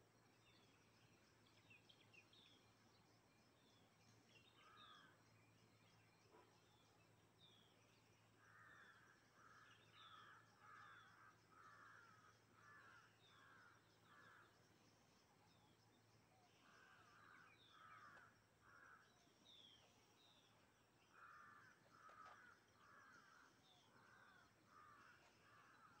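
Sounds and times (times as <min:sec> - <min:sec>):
faint harsh bird calls: 0:16.5 - 0:26.0.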